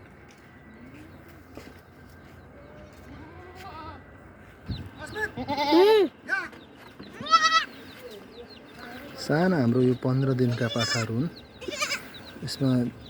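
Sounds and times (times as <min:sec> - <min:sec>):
goats bleating: 0:03.0 - 0:04.1, 0:05.0 - 0:06.5, 0:07.2 - 0:07.8, 0:10.4 - 0:12.2.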